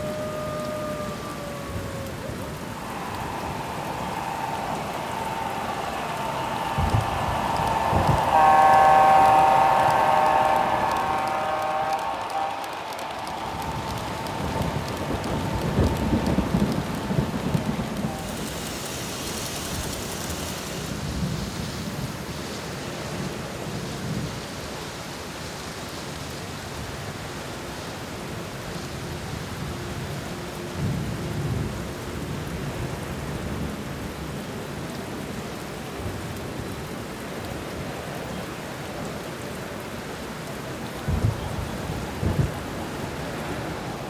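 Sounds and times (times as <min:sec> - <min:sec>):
thunder rumbling: 0:00.0 - 0:24.4, 0:40.9 - 0:44.0
steady rain: 0:00.0 - 0:44.0.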